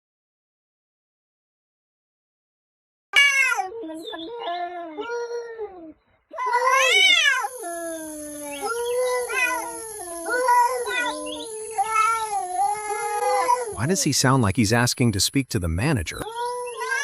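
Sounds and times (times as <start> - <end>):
cat meowing: 3.2 - 5.8, 6.4 - 13.8, 16.3 - 17.0.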